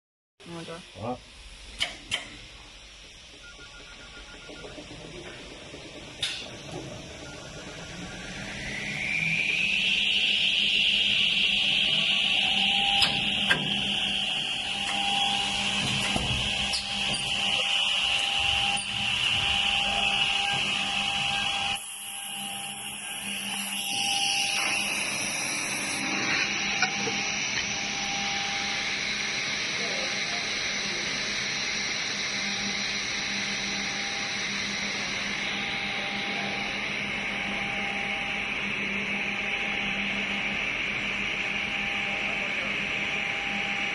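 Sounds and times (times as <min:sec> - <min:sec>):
machine high-pitched whine: 0:00.4 - 0:43.9
machine low hum: 0:00.4 - 0:43.9.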